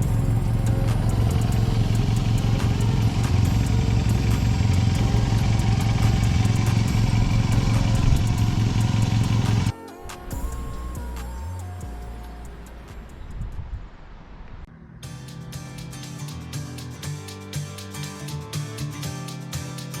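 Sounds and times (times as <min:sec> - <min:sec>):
motorcycle engine running: 0:00.0 - 0:11.1
background music: 0:00.0 - 0:13.4, 0:15.0 - 0:20.0.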